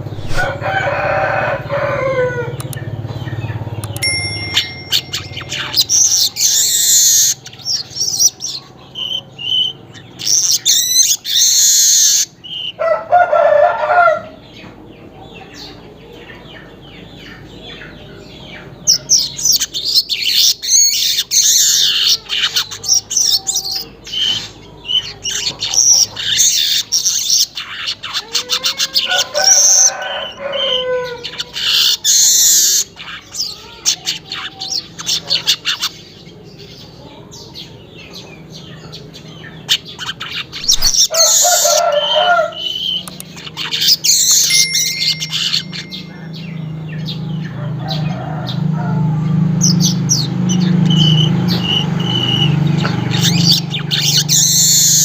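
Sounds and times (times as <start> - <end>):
weaver bird chattering: 4.9 - 12.7, 39.7 - 41.8.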